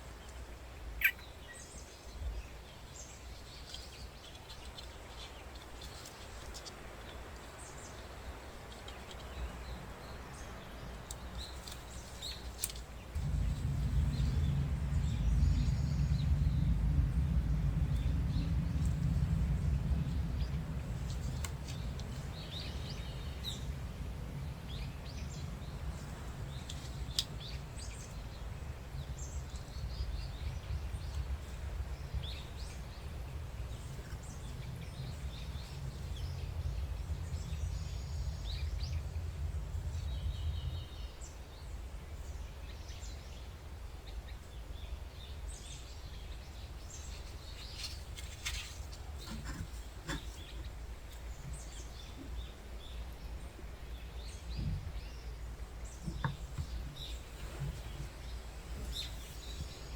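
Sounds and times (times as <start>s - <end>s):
small birds chirping: 0.0s - 59.9s
steady low rumble: 13.0s - 59.9s.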